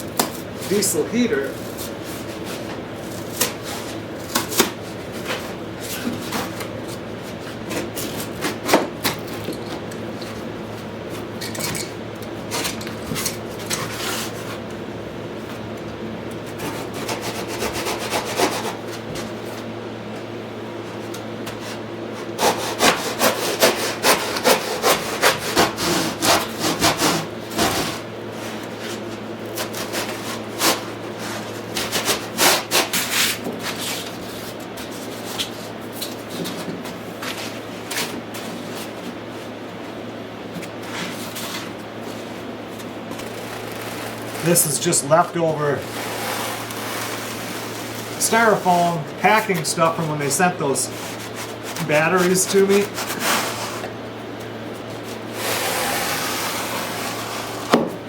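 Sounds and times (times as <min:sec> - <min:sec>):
air handler hum: 0:00.0 - 0:58.0
fast rubbing or sawing strokes: 0:16.6 - 0:18.8, 0:22.4 - 0:28.0, 0:45.8 - 0:49.4, 0:55.3 - 0:57.8.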